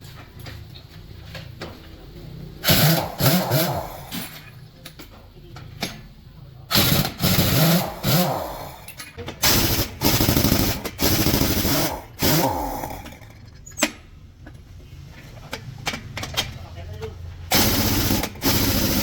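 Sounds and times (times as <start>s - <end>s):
pneumatic impact wrench: 2.6s - 4.4s, 6.7s - 14.0s, 17.5s - 19.0s.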